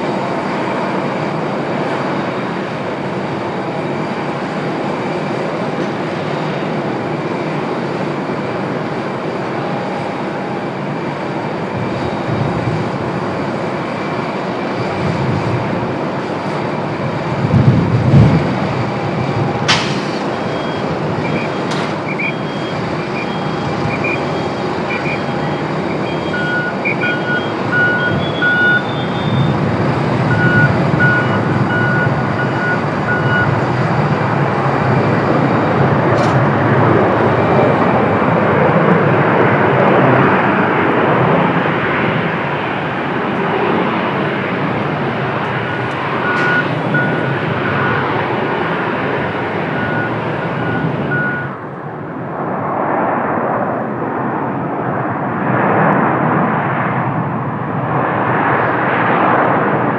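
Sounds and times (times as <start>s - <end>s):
jet engines running: 0.0s - 59.9s
high electronic beeps: 20.3s - 29.6s, 30.3s - 33.6s, 45.5s - 48.1s, 49.7s - 51.5s.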